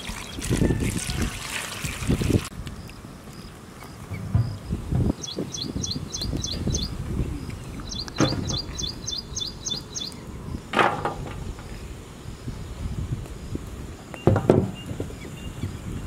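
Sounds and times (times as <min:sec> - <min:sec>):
bird chirping: 0:02.8 - 0:10.6.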